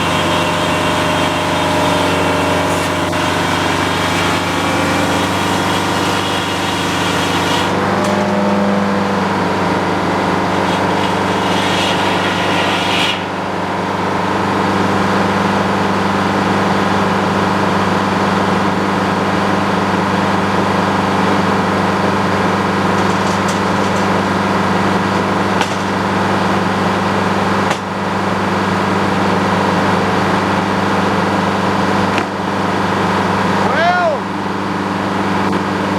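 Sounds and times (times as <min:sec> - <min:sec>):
saw blade cutting log: 0:00.0 - 0:08.5, 0:09.4 - 0:16.1, 0:22.1 - 0:30.7, 0:31.4 - 0:34.1
sawmill engine running under load: 0:00.0 - 0:35.9.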